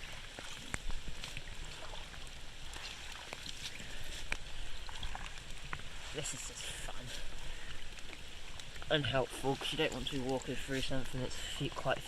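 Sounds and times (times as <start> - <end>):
floodwater flowing through sticks: 0.0 - 12.0
small splashes and drips: 0.0 - 12.0.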